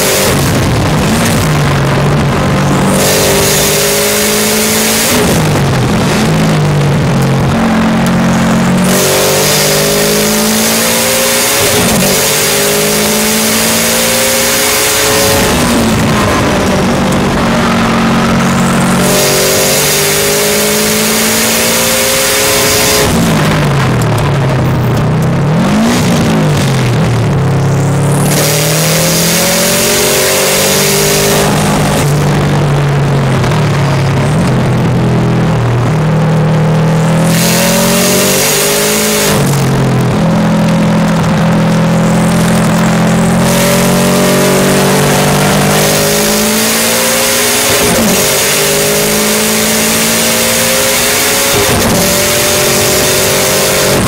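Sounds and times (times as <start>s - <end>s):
turbocharged car engine under load: 0.0s - 54.0s.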